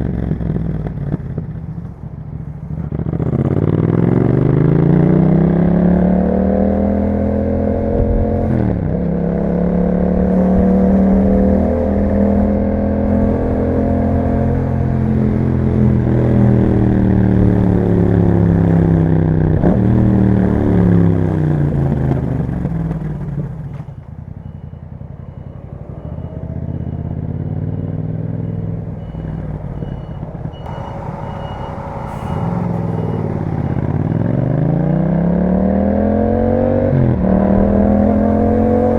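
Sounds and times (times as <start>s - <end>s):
motorcycle engine accelerating: 0.0s - 38.9s
faint high beep: 23.6s - 34.8s.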